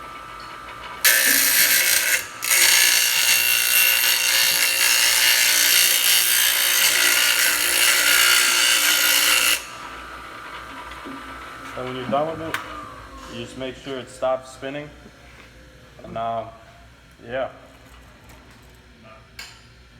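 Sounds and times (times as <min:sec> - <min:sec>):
metal grinding on grinder wheel: 0:01.0 - 0:10.6.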